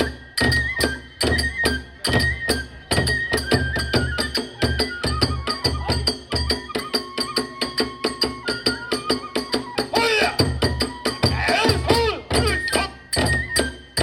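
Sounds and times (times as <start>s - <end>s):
bamboo flute melody: 0.0s - 14.0s
rapid drum beats: 9.2s - 14.0s
small hand cymbals clashing: 10.6s - 14.0s.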